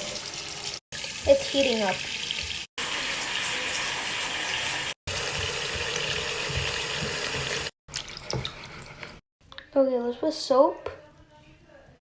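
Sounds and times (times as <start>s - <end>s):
water running from tap: 0.0s - 9.2s.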